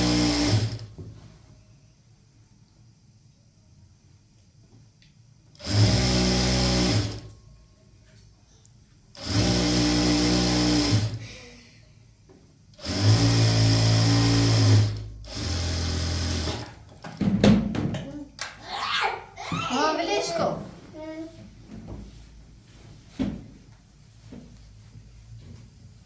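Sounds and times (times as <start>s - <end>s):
electric sewing machine running: 0.0s - 0.9s, 5.6s - 7.3s, 9.2s - 11.2s, 12.8s - 16.8s.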